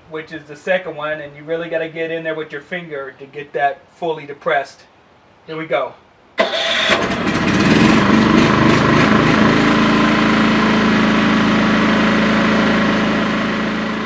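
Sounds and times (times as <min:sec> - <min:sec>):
generator engine running: 0:06.4 - 0:14.0.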